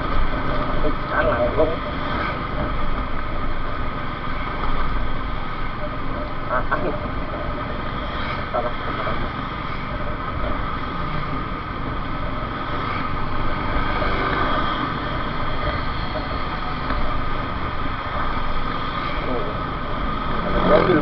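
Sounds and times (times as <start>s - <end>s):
wind and road noise: 0.0s - 21.0s.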